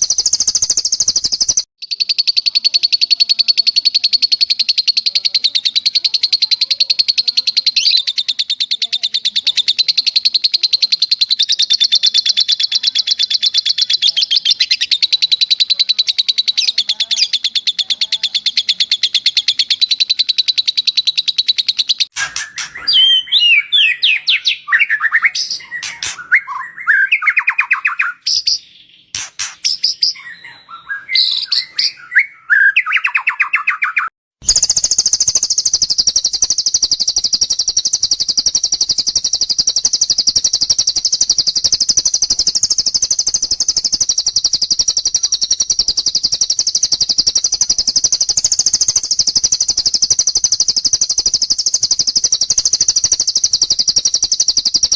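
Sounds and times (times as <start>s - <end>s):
bird trilling and whistling: 0.0s - 54.9s.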